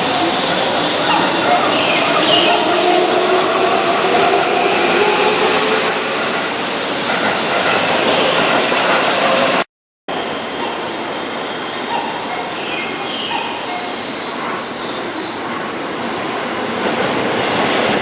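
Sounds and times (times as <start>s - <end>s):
rail hiss: 0.0s - 9.6s.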